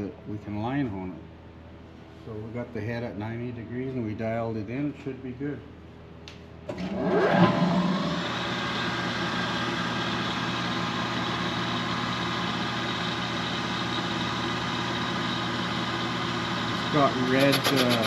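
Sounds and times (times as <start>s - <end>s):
spindle motor starting up: 6.7s - 8.7s, 17.2s - 18.0s.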